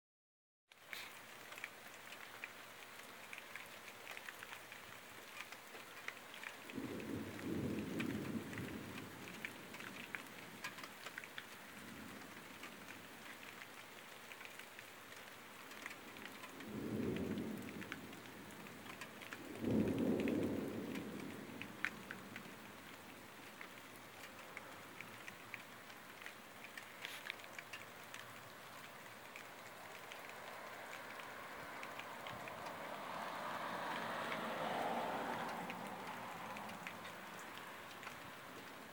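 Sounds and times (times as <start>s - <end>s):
heavy rain pattering: 0.7s - 38.9s
low thunder rolling: 6.7s - 10.6s, 16.6s - 22.6s.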